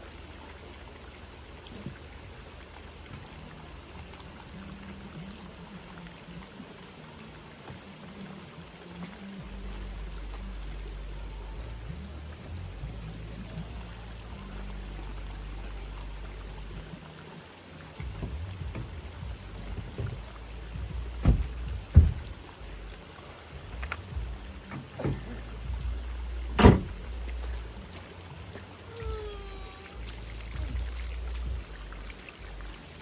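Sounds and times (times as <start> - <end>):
running water rumble: 0.0 - 33.0
sharp knocks and splashes: 12.0 - 33.0.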